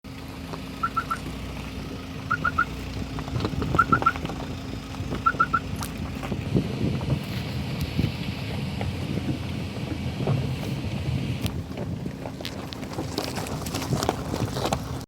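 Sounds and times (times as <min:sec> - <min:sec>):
high triple beep: 0:00.8 - 0:01.2, 0:02.3 - 0:02.7, 0:03.8 - 0:04.2, 0:05.2 - 0:05.6
wind noise: 0:02.4 - 0:15.0.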